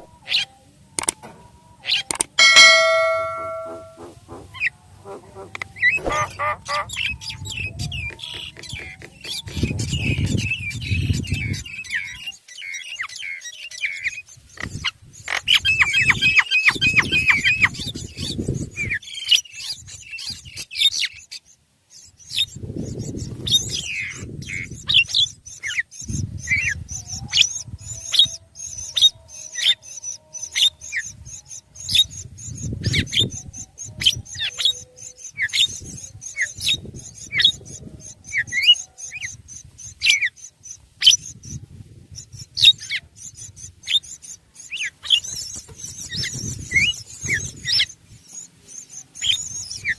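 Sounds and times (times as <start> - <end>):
birds chirping: 1.8 - 20.9.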